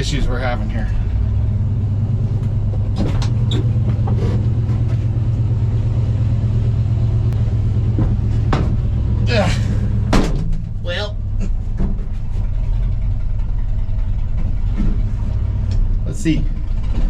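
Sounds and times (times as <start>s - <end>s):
pickup engine idling: 0.0s - 17.0s.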